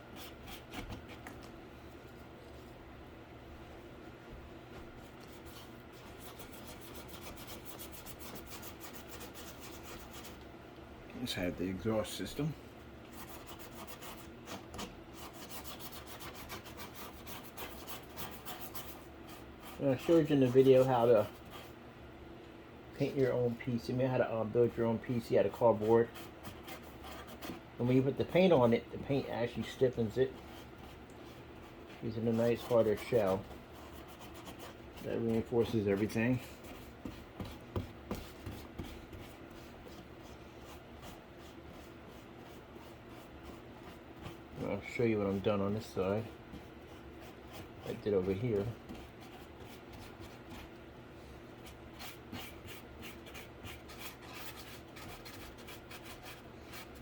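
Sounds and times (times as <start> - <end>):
paintbrush rubbing on cardboard: 4.8 - 10.4, 13.2 - 21.8, 24.6 - 50.8, 51.6 - 57.0
cardboard rubbing and knocks: 37.0 - 39.3.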